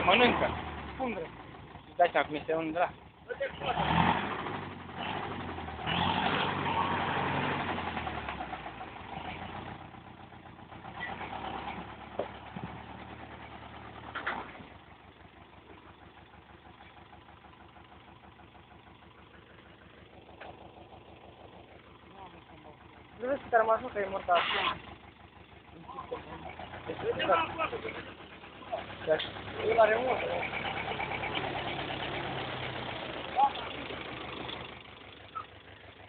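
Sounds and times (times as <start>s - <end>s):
diesel tractor engine running: 0.0s - 36.0s.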